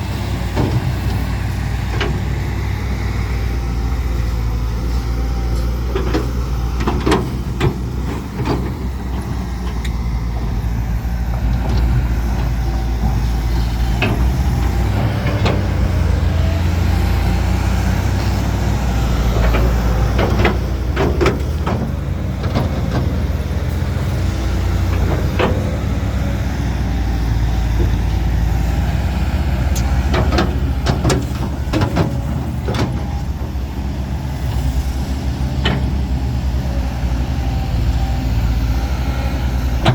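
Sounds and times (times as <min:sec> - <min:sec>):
diesel machinery engine drone: 0:00.0 - 0:39.9
metallic clanks and knocks: 0:05.6 - 0:10.6, 0:11.3 - 0:16.0, 0:19.3 - 0:23.3, 0:24.7 - 0:25.8, 0:29.7 - 0:33.5.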